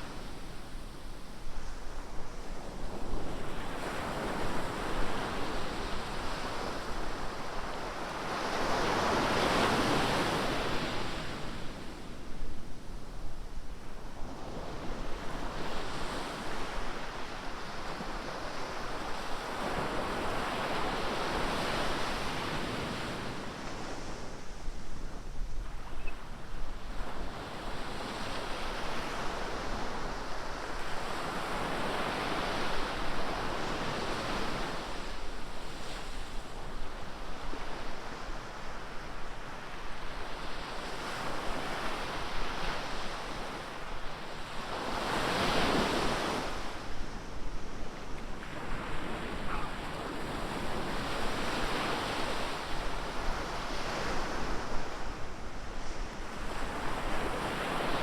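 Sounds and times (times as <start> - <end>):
ocean surf breaking on beach: 25.6 - 58.0.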